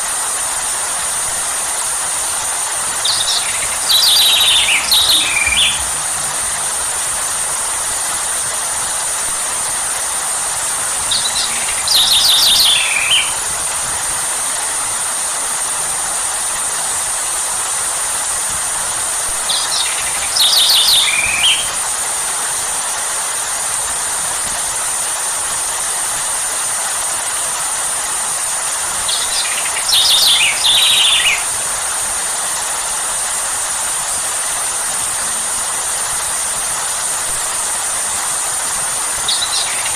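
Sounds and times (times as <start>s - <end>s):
rain hiss: 0.0s - 39.9s
bird chirping descending calls: 2.9s - 7.0s, 11.1s - 13.4s, 19.5s - 21.8s, 29.1s - 31.5s, 39.3s - 39.9s.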